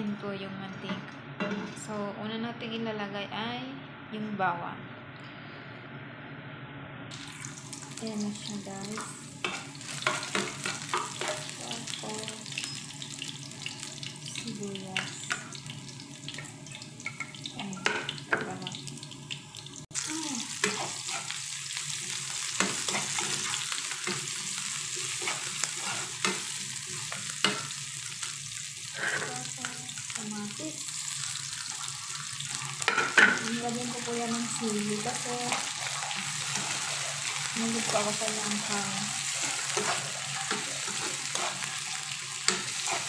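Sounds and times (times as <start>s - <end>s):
garlic and onion sizzling in oil: 7.1s - 43.0s
metal spoon scraping and tapping pan: 9.4s - 11.5s, 25.0s - 27.7s, 42.4s - 43.0s.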